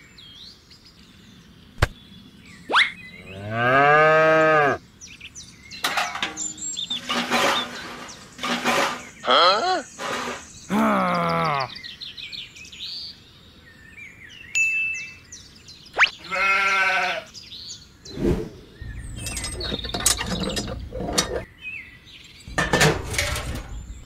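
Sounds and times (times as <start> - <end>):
sheep bleat: 16.2 - 17.3.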